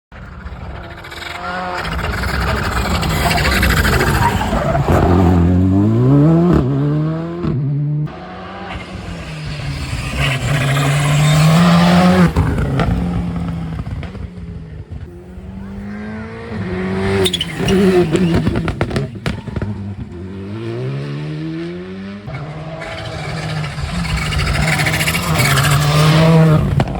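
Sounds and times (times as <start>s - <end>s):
rally car engine accelerating hard: 0.1s - 26.9s
turbo flutter: 0.2s - 4.8s, 22.8s - 26.9s.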